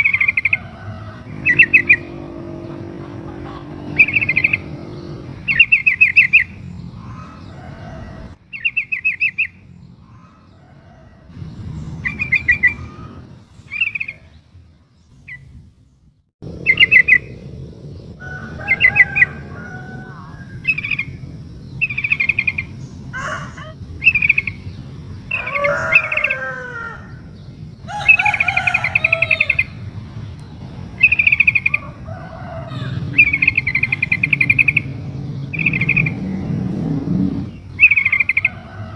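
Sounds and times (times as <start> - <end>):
bird chattering calls: 0.0 - 10.6, 31.0 - 32.0, 32.7 - 36.5, 37.3 - 38.6
bird calls with falling notes: 0.0 - 15.6, 16.5 - 38.9.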